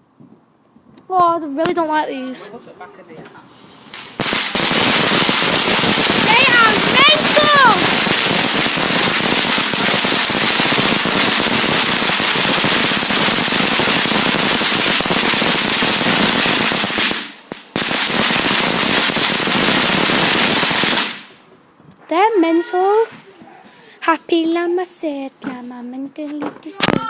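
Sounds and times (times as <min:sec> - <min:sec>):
firework crackling: 0:03.8 - 0:21.4.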